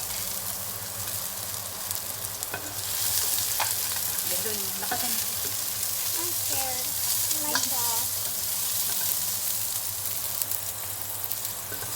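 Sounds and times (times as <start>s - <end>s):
garlic sizzling in oil: 0.0s - 11.9s
utensil clicking against pan: 3.5s - 5.6s, 7.5s - 9.2s.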